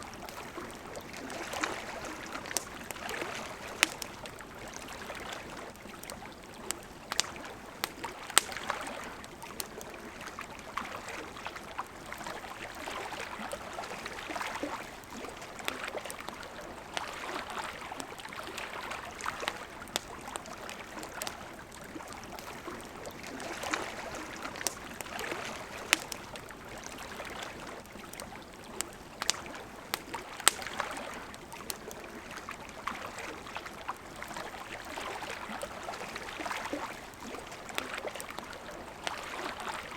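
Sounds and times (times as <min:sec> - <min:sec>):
wood fire crackling: 0:00.0 - 0:10.8, 0:13.4 - 0:33.0.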